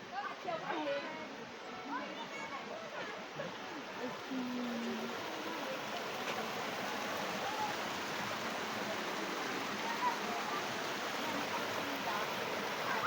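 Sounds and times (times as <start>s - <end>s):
waterfall rushing: 4.1s - 13.0s.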